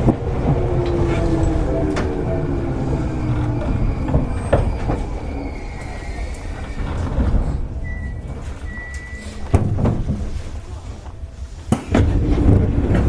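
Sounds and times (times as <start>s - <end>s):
traction motor hum: 0.0s - 8.0s.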